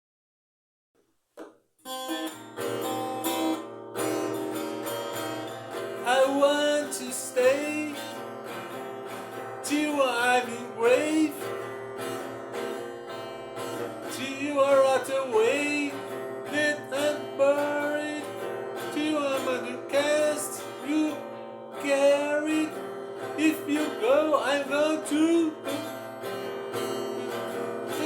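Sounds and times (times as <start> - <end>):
acoustic guitar strummed and picked: 1.9 - 28.0
person singing: 6.0 - 8.2, 9.6 - 11.6, 14.1 - 26.0, 26.9 - 28.0.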